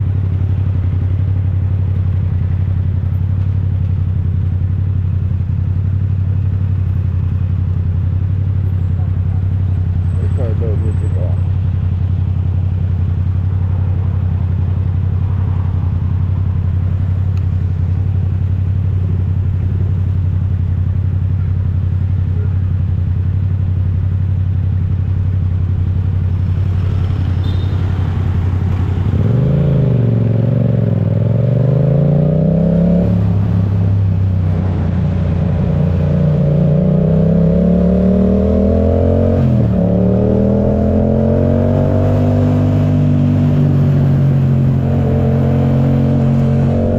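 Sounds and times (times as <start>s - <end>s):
motorcycle engine idling: 0.0s - 29.2s
motorcycle engine revving: 7.7s - 46.9s.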